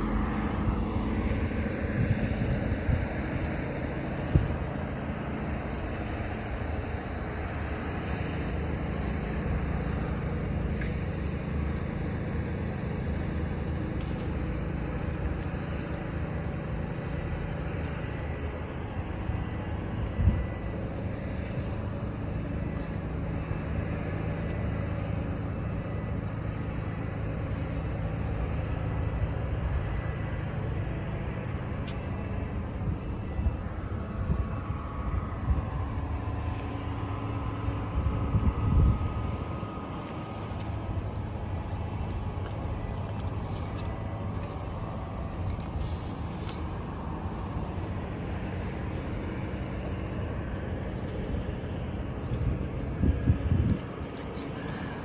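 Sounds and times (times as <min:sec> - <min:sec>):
low engine hum: 0:00.0 - 0:55.0.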